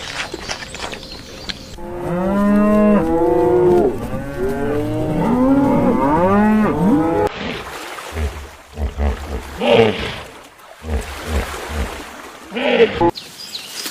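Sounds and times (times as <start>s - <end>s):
cattle mooing: 1.8s - 7.3s.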